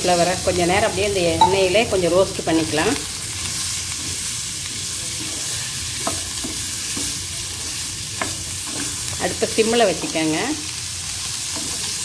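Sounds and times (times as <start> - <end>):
vegetables sizzling in hot oil: 0.0 - 12.0
spatula tapping and scraping pan: 6.0 - 7.2.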